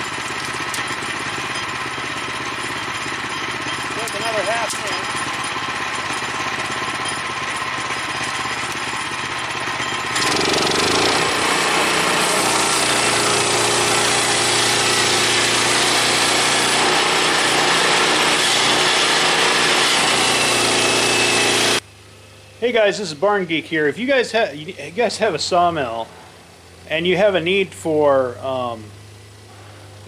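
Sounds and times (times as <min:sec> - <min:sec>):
saw blade cutting timber: 0:00.0 - 0:21.8
sawmill engine running: 0:00.0 - 0:30.0.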